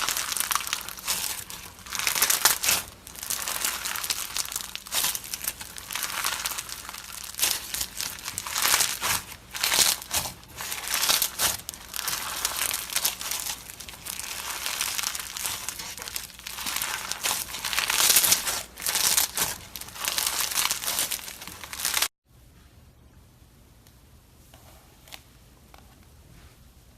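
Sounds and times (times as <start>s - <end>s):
slime crackling as squeezed: 0.0s - 22.1s.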